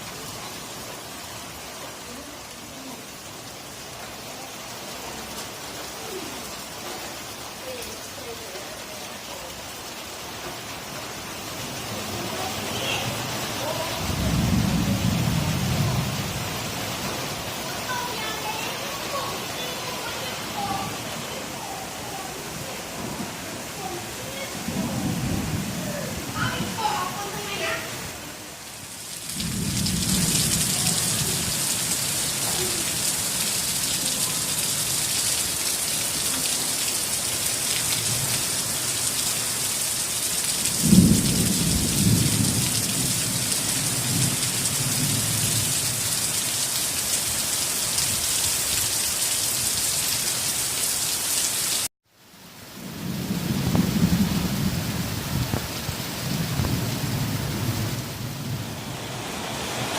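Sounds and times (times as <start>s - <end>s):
heavy rain pouring: 0.0s - 59.9s
thunder rolling: 12.4s - 16.6s, 24.1s - 28.1s, 29.3s - 32.7s, 40.7s - 45.7s, 52.8s - 59.9s
sharp thunderclap: 14.0s - 16.4s, 29.3s - 31.6s, 40.6s - 45.7s, 52.9s - 59.3s.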